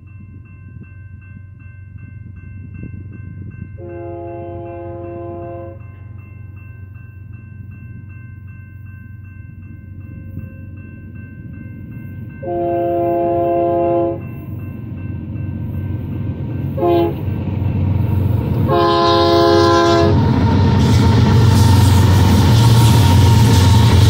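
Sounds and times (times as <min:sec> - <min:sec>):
locomotive engines and wheels rumbling: 0:00.0 - 0:24.0
locomotive air horn: 0:03.8 - 0:05.8, 0:12.4 - 0:14.2, 0:16.8 - 0:17.3, 0:18.7 - 0:20.3.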